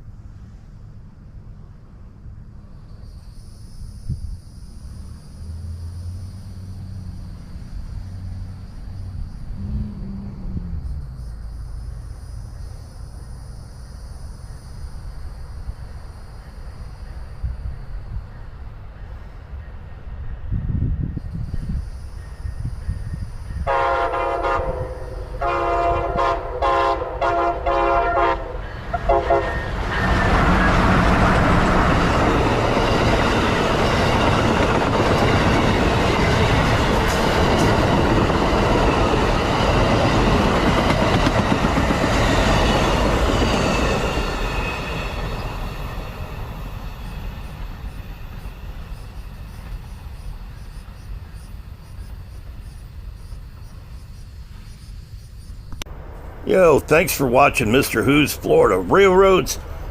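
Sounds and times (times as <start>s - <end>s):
train wheels rumbling on rails: 14.4s - 55.2s
train horn blasts: 23.6s - 31.0s.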